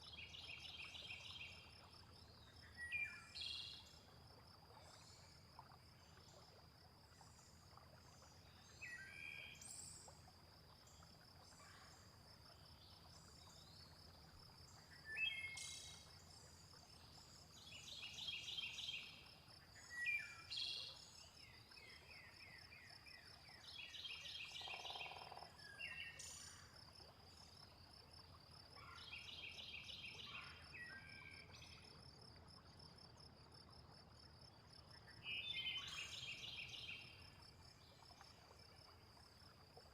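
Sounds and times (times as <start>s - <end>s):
low croak: 24.5s - 29.1s.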